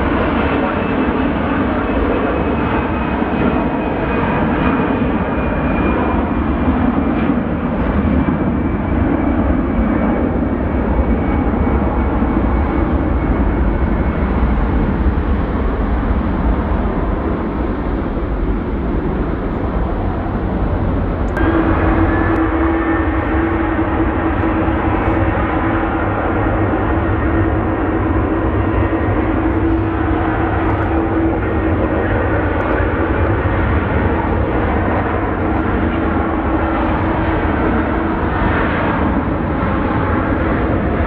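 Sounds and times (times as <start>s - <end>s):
jet airliner engines running: 0.0s - 41.0s
steady low hum: 10.3s - 41.0s
faint whine falling in pitch: 21.2s - 26.4s.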